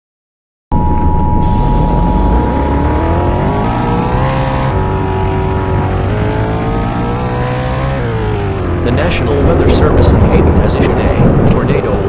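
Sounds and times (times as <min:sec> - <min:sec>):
two-tone alert signal: 0:00.7 - 0:08.3
vehicle engine accelerating: 0:00.8 - 0:12.0.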